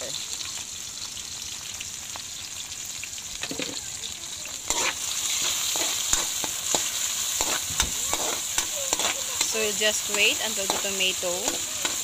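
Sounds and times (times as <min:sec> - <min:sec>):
vegetables sizzling in hot oil: 0:00.0 - 0:12.0
metal spatula scraping pan: 0:04.7 - 0:12.0.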